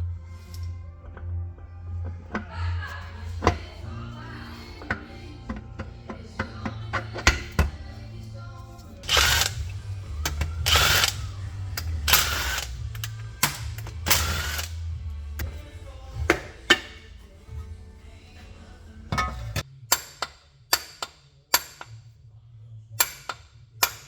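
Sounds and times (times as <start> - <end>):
background music: 0.0 - 21.8
power tool bursts: 9.0 - 9.7.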